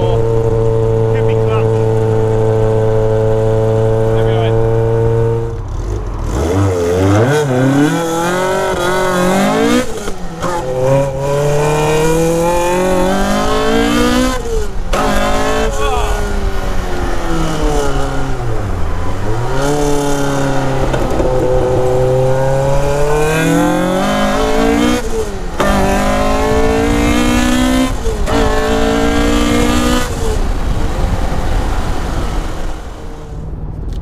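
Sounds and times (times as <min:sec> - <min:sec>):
car engine revving: 0:00.0 - 0:34.0.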